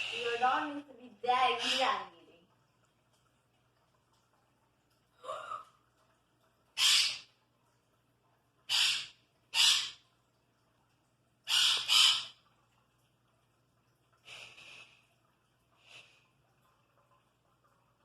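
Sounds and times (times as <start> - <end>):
parrot squawking: 1.4 - 2.0, 6.8 - 7.3, 8.7 - 10.0, 11.5 - 12.4.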